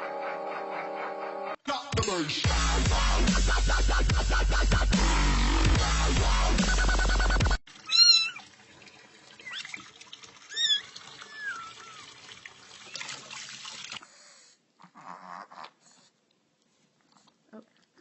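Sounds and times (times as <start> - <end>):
loud electronic dance music: 1.7 - 7.6
cat meowing: 7.9 - 8.4.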